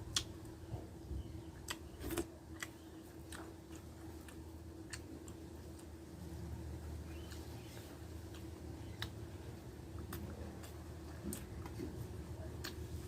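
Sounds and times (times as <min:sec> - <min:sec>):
steady low hum: 0:00.0 - 0:13.0
person chewing with mouth smacks: 0:01.6 - 0:06.0, 0:07.2 - 0:13.0.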